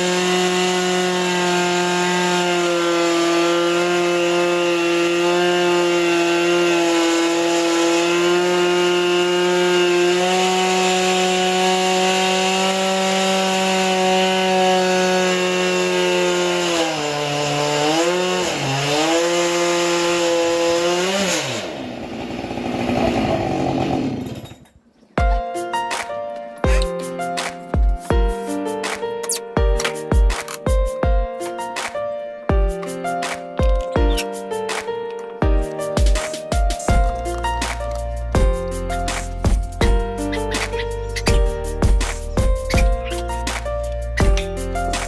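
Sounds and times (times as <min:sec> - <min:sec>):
chainsaw cutting log: 0:00.0 - 0:24.6, 0:25.9 - 0:32.0, 0:32.6 - 0:45.0.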